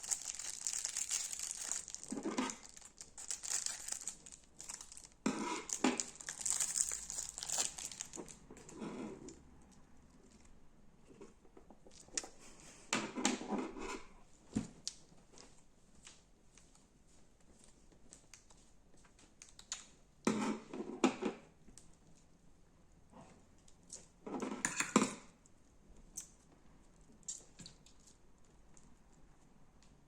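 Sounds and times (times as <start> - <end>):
slime squeezed crackling: 0.0 - 8.4.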